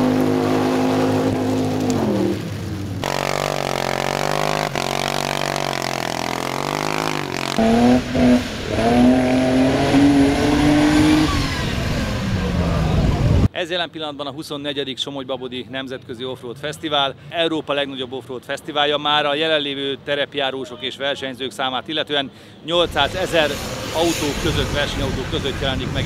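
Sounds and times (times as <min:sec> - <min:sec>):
off-road engines revving: 0:00.0 - 0:13.5, 0:22.8 - 0:26.0.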